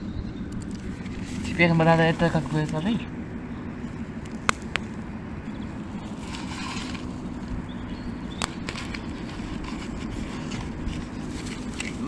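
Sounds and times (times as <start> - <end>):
low rumble: 0.0 - 12.0
paper rustle: 0.8 - 2.9, 6.0 - 12.0
kindling clicks and snaps: 4.2 - 5.0, 8.3 - 9.1.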